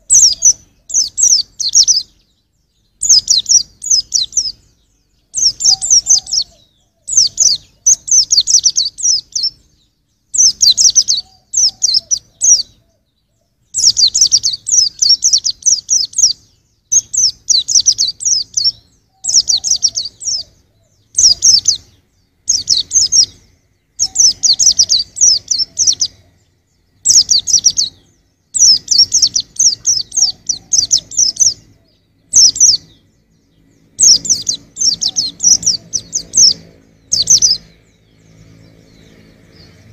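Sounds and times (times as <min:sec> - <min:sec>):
bird twittering: 0:00.0 - 0:39.9.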